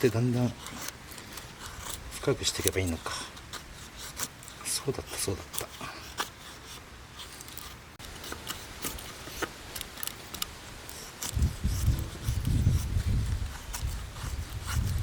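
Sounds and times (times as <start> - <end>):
knife scraping wood: 0.0 - 15.0.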